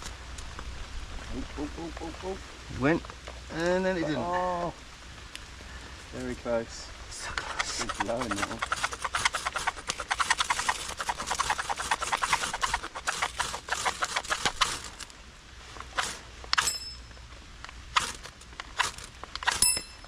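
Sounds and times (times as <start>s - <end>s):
sharp clicks: 7.2s - 15.1s, 17.9s - 19.9s
ferro rod scraping strikes: 15.8s - 17.2s, 17.9s - 20.0s.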